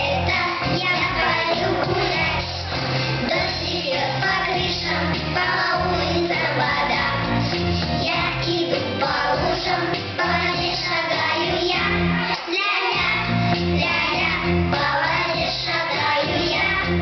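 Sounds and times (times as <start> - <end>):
band accompaniment with bass: 0.0 - 12.3, 13.0 - 17.0
children singing pop song: 0.0 - 17.0.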